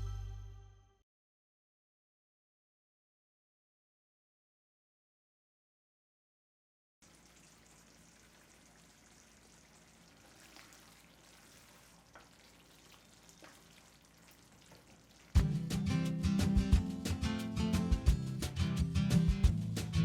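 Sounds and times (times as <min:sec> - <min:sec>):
food sizzling in oil: 0:07.0 - 0:15.9.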